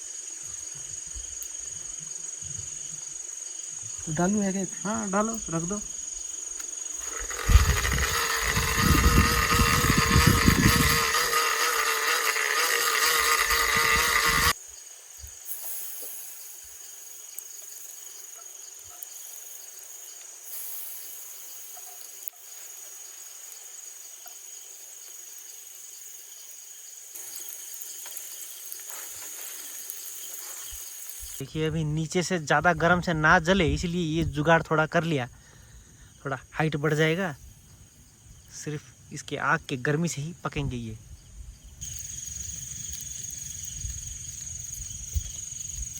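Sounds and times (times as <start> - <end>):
crickets chirping: 0.0 - 45.9
faint hiss: 14.5 - 45.9.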